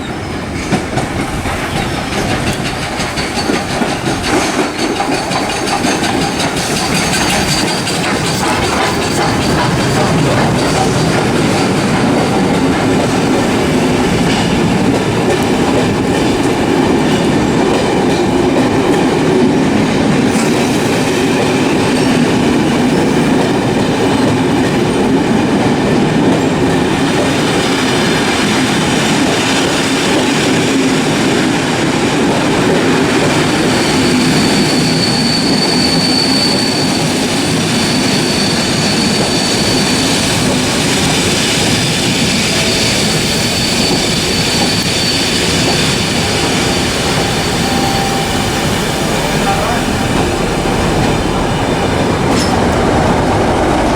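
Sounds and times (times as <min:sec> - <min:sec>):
train wheels rumbling on rails: 0:00.0 - 0:53.9
high wheel squeal: 0:33.4 - 0:52.8.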